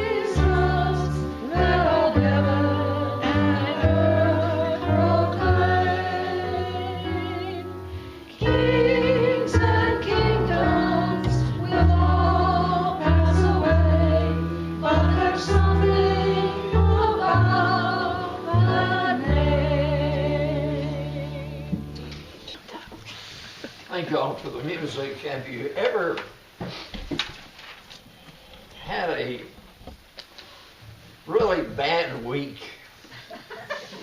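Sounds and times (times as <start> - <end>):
congregation singing a hymn: 0.0 - 22.0.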